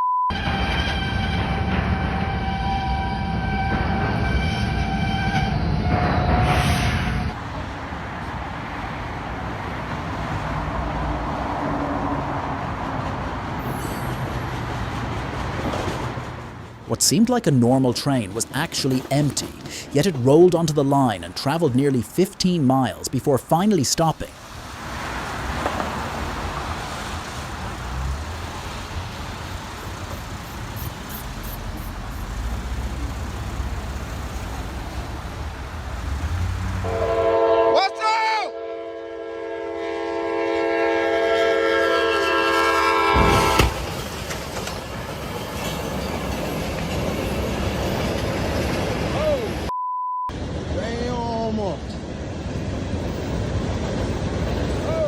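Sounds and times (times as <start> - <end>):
moving vehicle noise: 3.7 - 37.5, 50.3 - 55.0.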